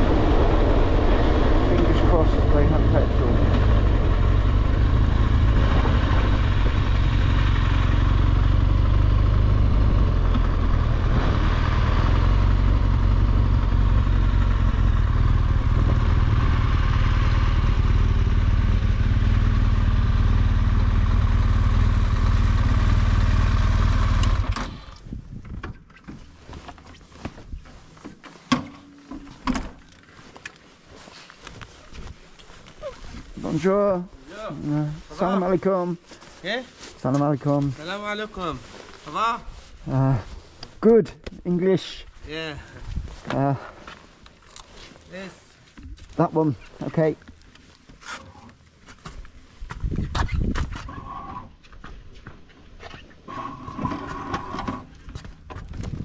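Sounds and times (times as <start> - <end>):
wind rushing: 0.0 - 7.3
motorcycle engine running: 0.0 - 24.8.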